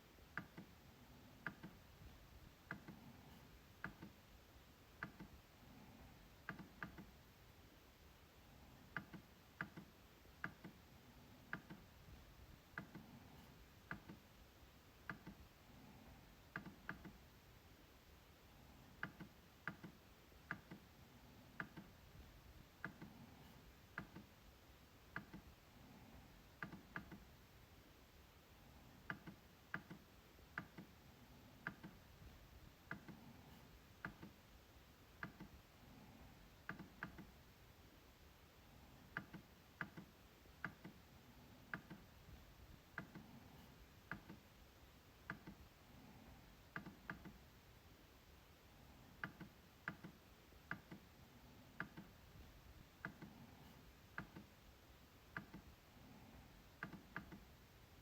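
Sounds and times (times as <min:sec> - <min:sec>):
trackpad clicks: 0:01.4 - 0:01.8, 0:06.4 - 0:07.1, 0:08.9 - 0:10.8, 0:16.5 - 0:17.2, 0:19.0 - 0:20.9, 0:21.5 - 0:22.0, 0:22.8 - 0:24.3, 0:26.6 - 0:27.3, 0:29.1 - 0:30.9, 0:31.6 - 0:32.0, 0:36.6 - 0:37.4, 0:39.1 - 0:41.0, 0:41.7 - 0:42.1, 0:45.2 - 0:45.6, 0:51.8 - 0:52.2, 0:54.1 - 0:54.5, 0:55.3 - 0:55.7, 0:56.8 - 0:57.5.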